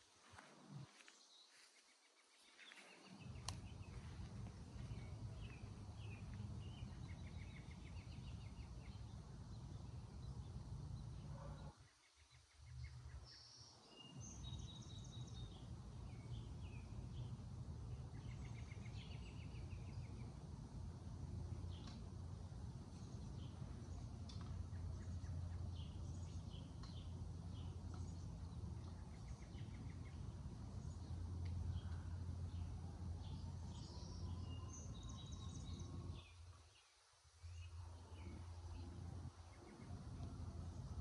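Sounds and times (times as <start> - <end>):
small birds chirping and trilling: 0.4 - 41.0
low rumble: 3.1 - 11.4.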